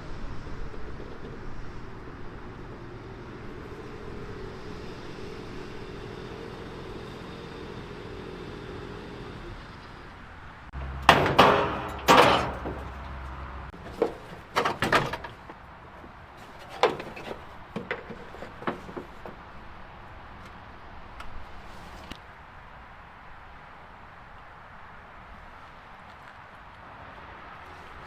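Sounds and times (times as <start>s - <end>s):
loud clunks and thuds: 10.8s - 19.5s.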